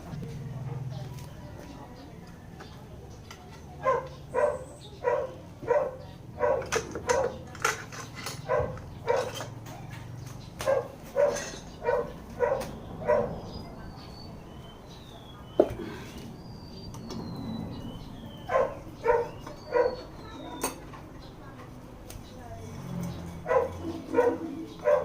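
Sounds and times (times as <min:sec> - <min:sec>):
dog barking: 0:03.8 - 0:07.4, 0:08.4 - 0:09.5, 0:10.6 - 0:13.5, 0:18.4 - 0:20.4, 0:23.4 - 0:25.0.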